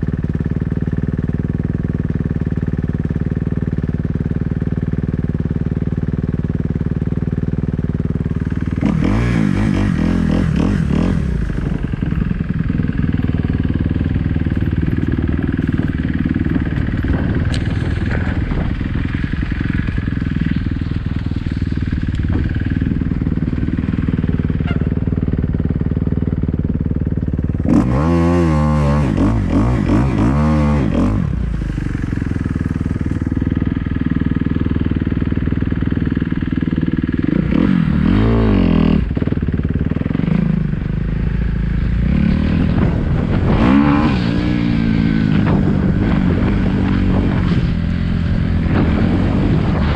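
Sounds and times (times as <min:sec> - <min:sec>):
dirt bike engine idling: 0:00.0 - 0:49.9
engine revving: 0:08.6 - 0:20.5, 0:27.5 - 0:33.3, 0:37.2 - 0:40.8, 0:41.8 - 0:49.9.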